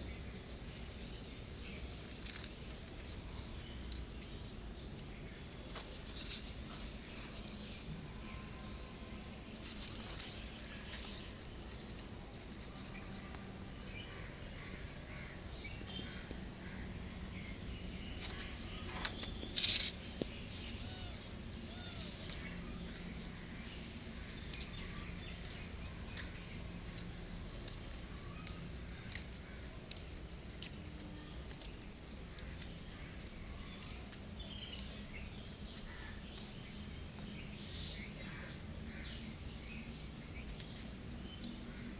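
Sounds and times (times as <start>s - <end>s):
faint chirps: 0.0s - 41.9s
high insect drone: 0.0s - 41.9s.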